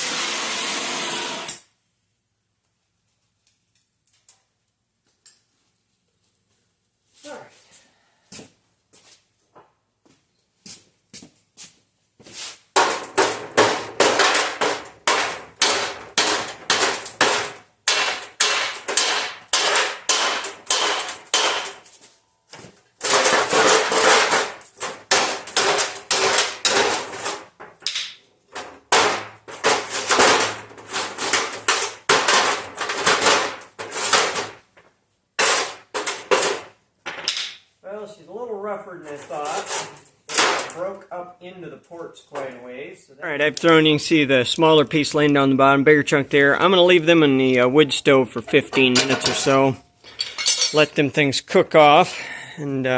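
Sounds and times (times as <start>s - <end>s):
hammer striking cast iron: 12.8s - 21.8s.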